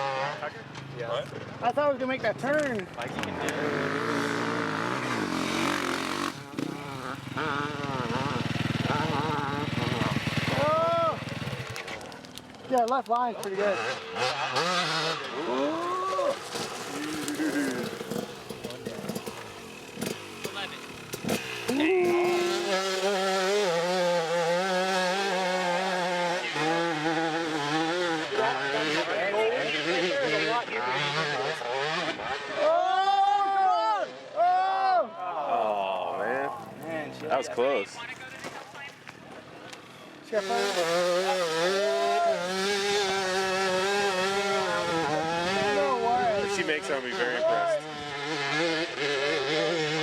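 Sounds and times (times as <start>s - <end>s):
off-road vehicle engine revving: 0.0s - 0.6s, 2.6s - 12.1s, 13.1s - 32.8s, 40.3s - 50.0s.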